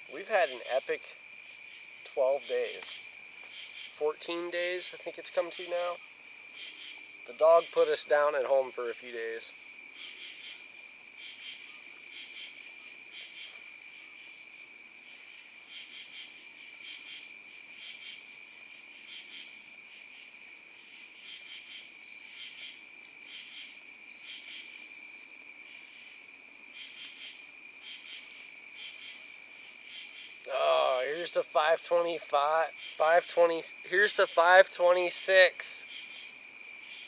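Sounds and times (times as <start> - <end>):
insect pulsed chirps: 0.0 - 7.9, 9.5 - 18.3, 21.0 - 24.9
insect high-pitched trill: 0.0 - 37.0.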